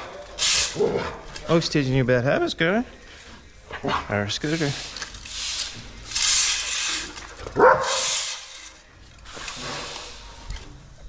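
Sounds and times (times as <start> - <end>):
dog barking: 7.6 - 8.1.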